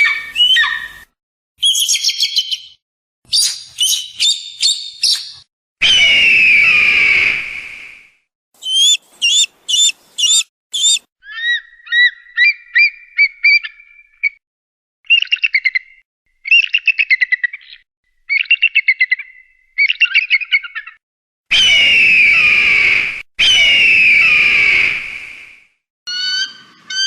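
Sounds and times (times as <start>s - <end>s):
high chirps: 8.6s - 11.0s
rapid high-pitched chattering trills: 8.6s - 11.0s
short whistled notes: 8.6s - 11.0s
eagle screaming: 8.6s - 11.6s.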